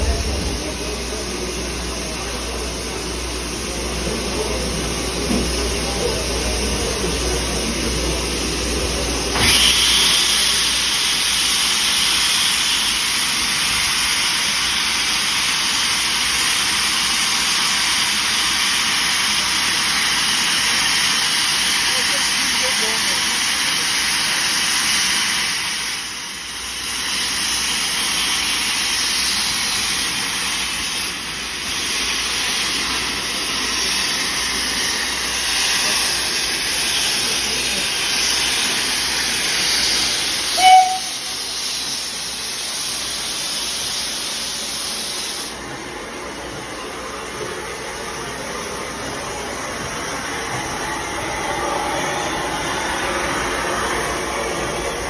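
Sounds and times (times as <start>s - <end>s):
steam locomotive venting steam: 0.0s - 55.0s
short sharp tone: 40.6s - 41.4s.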